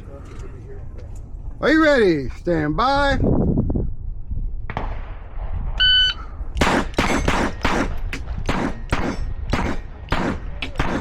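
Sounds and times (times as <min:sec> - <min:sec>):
shot timer beep: 0:05.8 - 0:06.2
pistol shots: 0:06.6 - 0:11.0.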